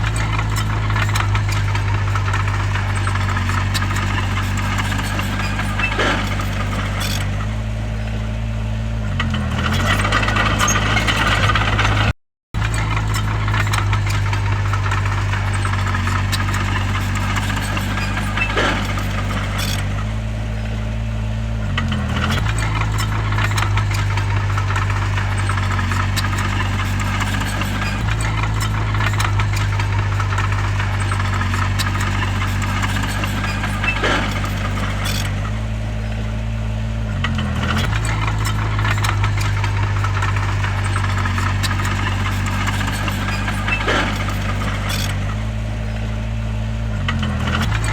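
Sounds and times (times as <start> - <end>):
bulldozer diesel engine running: 0.0 - 47.9
sharp metallic clanks: 37.3 - 45.5.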